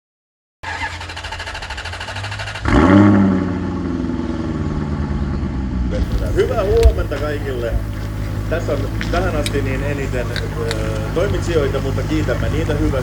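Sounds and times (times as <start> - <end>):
car engine running and revving: 2.6 - 13.0.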